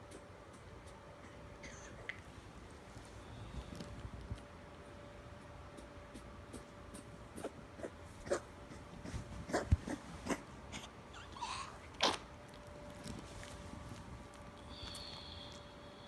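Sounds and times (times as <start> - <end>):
dog coughing and hacking: 6.5 - 12.3.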